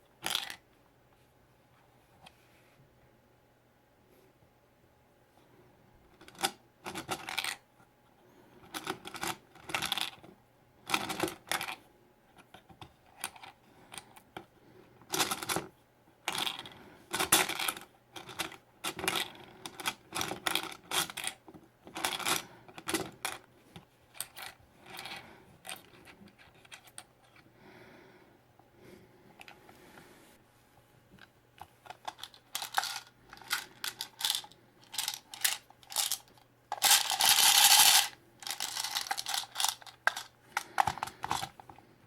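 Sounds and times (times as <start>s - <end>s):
plastic toys clicking and tapping: 0.2s - 0.6s, 6.2s - 7.6s, 8.6s - 11.8s, 15.1s - 23.4s, 31.8s - 41.7s
packaging crinkling: 32.0s - 41.2s.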